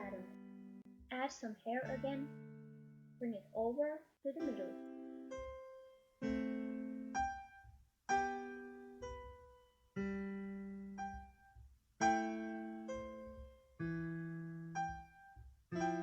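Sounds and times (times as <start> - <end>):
slow electric piano tune: 4.4 - 16.0.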